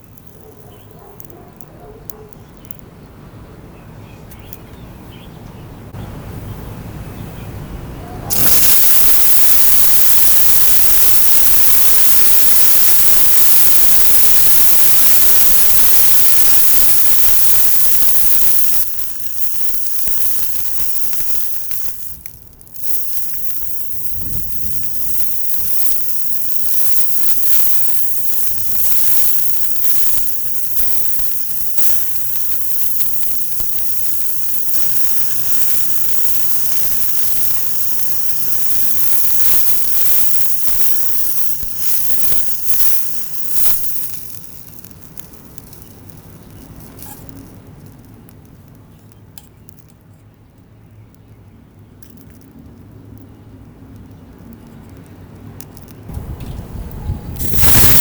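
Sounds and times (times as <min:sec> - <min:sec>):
loud steady hiss: 0:00.0 - 0:01.3, 0:05.9 - 0:47.8, 0:54.9 - 0:58.0
fire crackling: 0:00.0 - 0:03.2, 0:08.3 - 0:50.1, 0:50.8 - 0:58.0.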